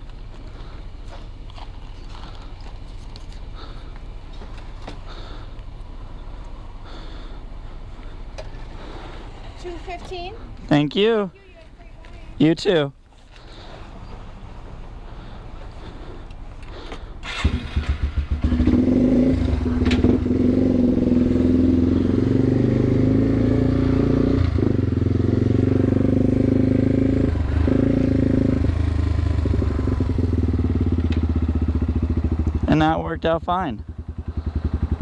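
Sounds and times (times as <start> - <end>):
motorcycle engine pulling away: 16.7 - 35.0.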